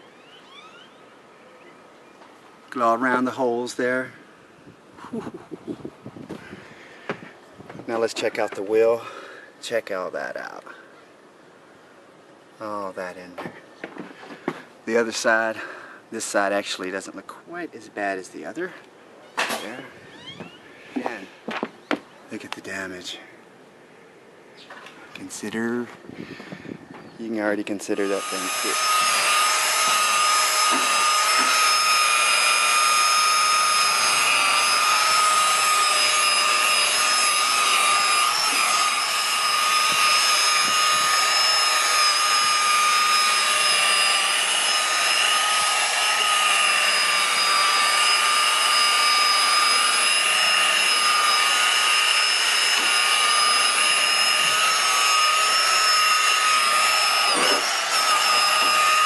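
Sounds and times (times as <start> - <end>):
electric polisher whining: 28.0 - 59.0.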